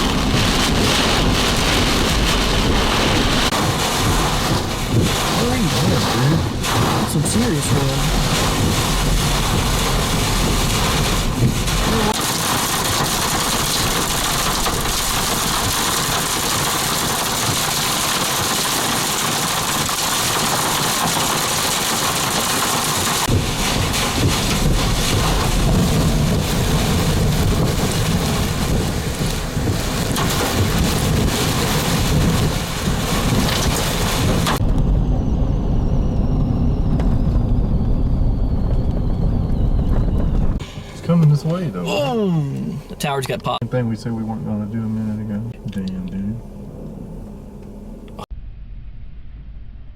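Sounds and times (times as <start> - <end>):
heavy wind-driven rain: 0.0 - 35.2
low thunder rumble: 0.0 - 41.8.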